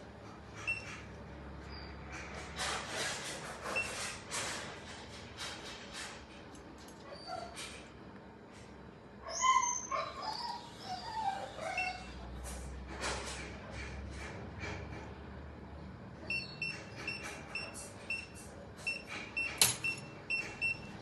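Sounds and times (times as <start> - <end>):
animal yelping: 9.2 - 12.3.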